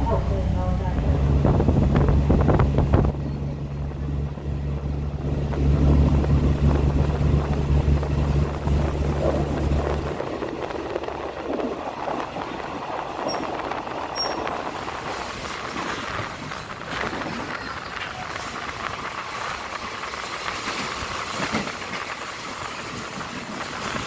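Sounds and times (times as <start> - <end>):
low engine hum: 0.0 - 24.0
train rolling noise: 0.0 - 24.0.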